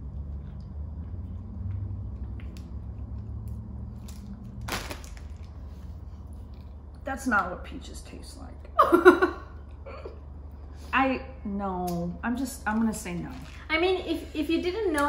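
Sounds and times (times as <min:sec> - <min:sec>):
chewing soft jelly snack: 0:00.0 - 0:07.1
low hum: 0:00.0 - 0:14.2
plastic wrapper rustle: 0:04.0 - 0:05.9, 0:12.8 - 0:13.8.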